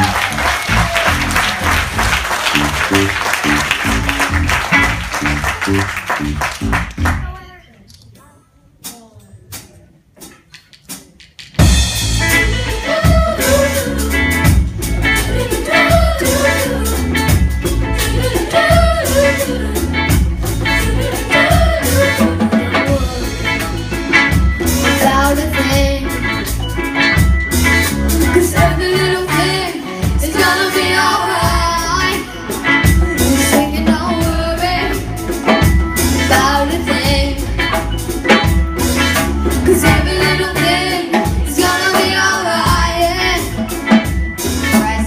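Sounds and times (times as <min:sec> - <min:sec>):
live reggae band: 0:00.0 - 0:07.4, 0:08.7 - 0:45.0
person singing: 0:12.4 - 0:14.5, 0:15.2 - 0:17.3.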